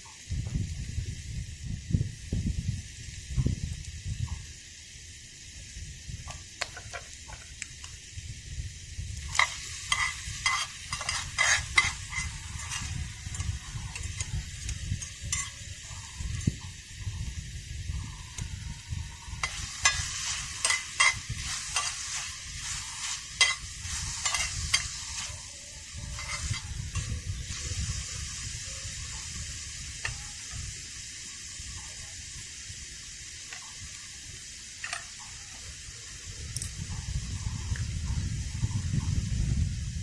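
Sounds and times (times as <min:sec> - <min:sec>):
food sizzling in a pan: 0:00.0 - 0:40.0
utensil scraping a pan: 0:09.3 - 0:16.4, 0:19.3 - 0:28.0.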